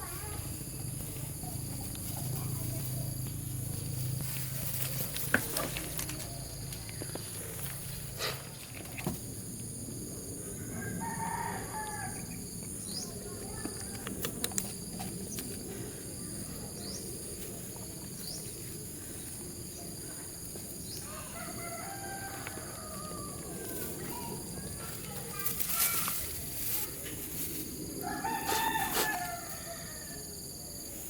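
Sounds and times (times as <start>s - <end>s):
high-pitched insect drone: 0.0s - 31.0s
rooster crowing: 10.6s - 12.4s, 21.0s - 23.7s, 28.0s - 30.4s.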